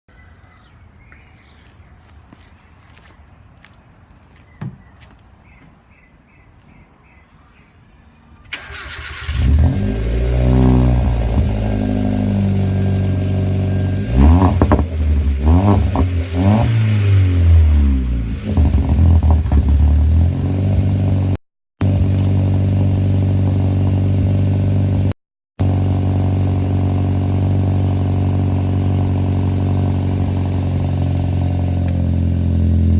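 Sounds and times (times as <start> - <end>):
car engine cranking: 8.5 - 11.6
car engine revving and idling: 8.8 - 32.9.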